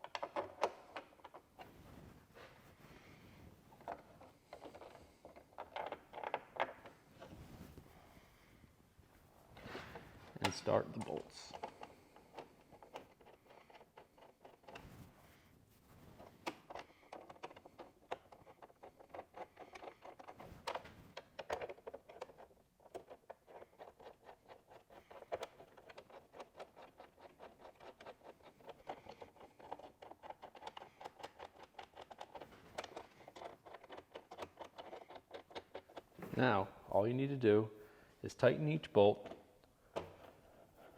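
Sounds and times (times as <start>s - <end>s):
hand tools clicking and scraping: 16.2s - 36.3s.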